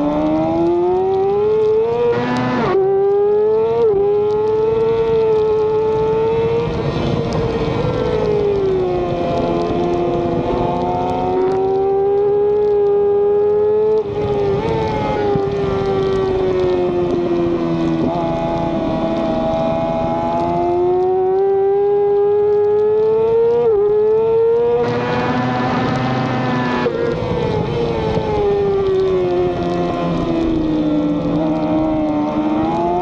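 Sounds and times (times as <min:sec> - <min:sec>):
race motorcycle engine revving: 0:08.8 - 0:27.1.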